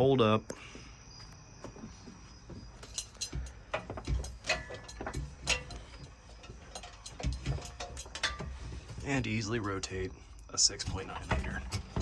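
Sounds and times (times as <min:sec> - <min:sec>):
low metal clunks: 0:10.7 - 0:12.0.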